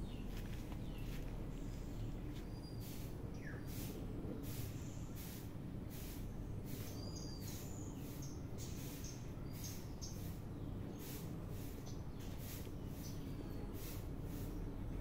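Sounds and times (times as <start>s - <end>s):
small birds chirping: 0.0s - 15.0s
steady low rumble: 0.0s - 15.0s
pulsing hiss: 2.8s - 14.8s.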